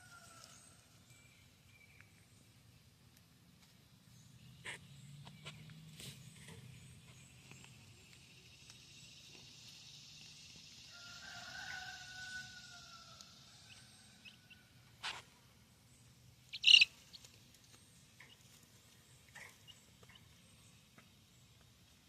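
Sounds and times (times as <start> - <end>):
young chickens calling: 4.5 - 15.4, 16.0 - 21.7
faint chick chirps: 16.5 - 17.3.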